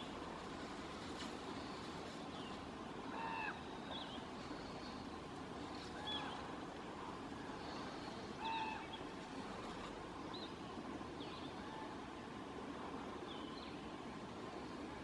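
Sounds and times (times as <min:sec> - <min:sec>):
faint outdoor hiss: 0:00.0 - 0:15.0
short bird calls: 0:03.1 - 0:05.1, 0:07.5 - 0:09.1.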